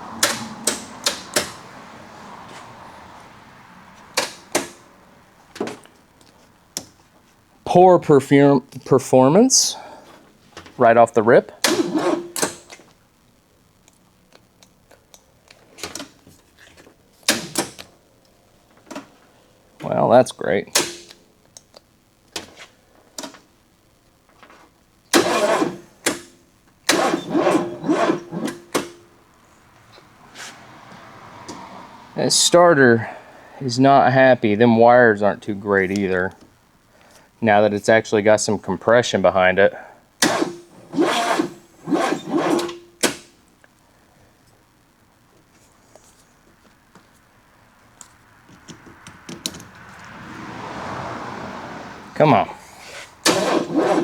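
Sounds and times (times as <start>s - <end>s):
engine cranking by starter: 0.0s - 2.6s, 11.6s - 12.8s, 25.1s - 29.1s, 40.2s - 43.3s, 53.2s - 54.0s.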